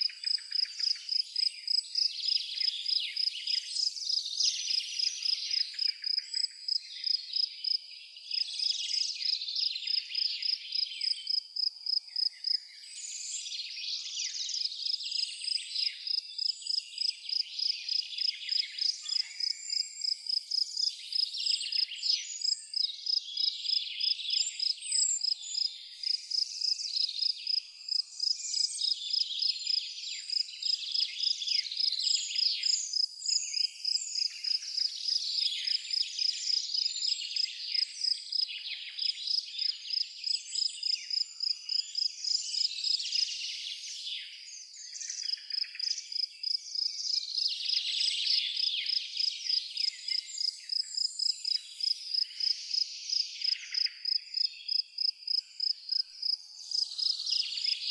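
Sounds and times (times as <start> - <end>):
cricket chirping: 0.0 - 4.2, 5.0 - 13.4, 14.5 - 57.9
songbirds singing: 0.0 - 57.9.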